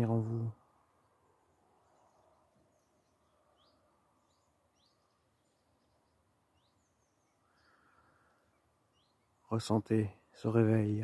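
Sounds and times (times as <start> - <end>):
faint background hiss: 0.0 - 11.0
high bird chirps: 1.8 - 9.4.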